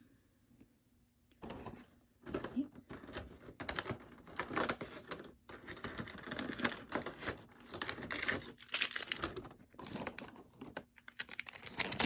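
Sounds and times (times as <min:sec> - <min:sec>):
cardboard and plastic packaging crinkling: 0:03.4 - 0:12.0.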